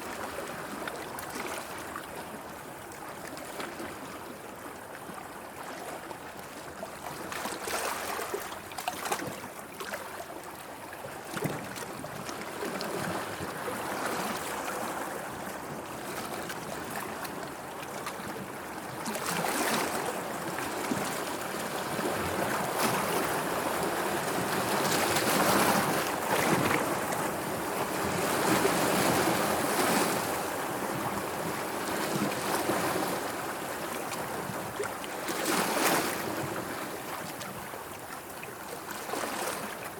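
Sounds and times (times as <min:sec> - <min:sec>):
sea waves washing and splashing: 0:11.3 - 0:39.9.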